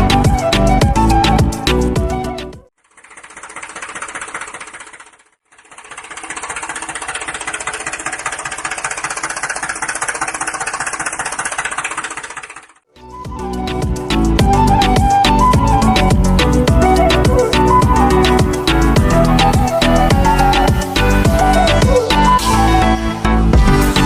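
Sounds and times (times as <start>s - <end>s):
small motor clattering: 2.8s - 12.9s.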